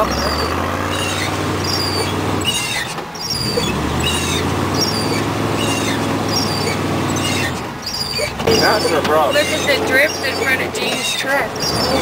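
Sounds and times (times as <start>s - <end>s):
short high squeak: 0.0s - 12.0s
truck engine running: 0.0s - 12.0s.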